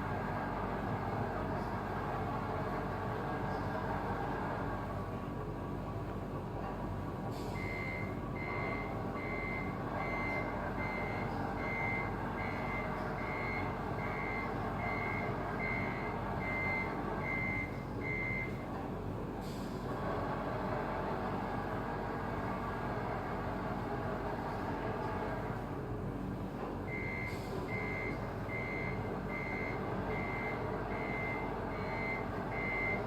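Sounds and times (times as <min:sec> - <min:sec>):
truck reversing beeper: 0:07.4 - 0:18.6, 0:26.9 - 0:33.0.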